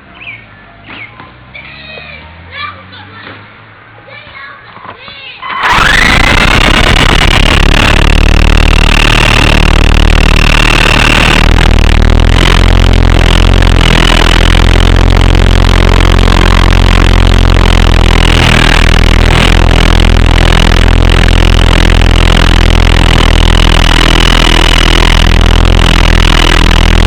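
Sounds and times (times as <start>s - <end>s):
toy helicopter motors whining: 5.5s - 27.0s.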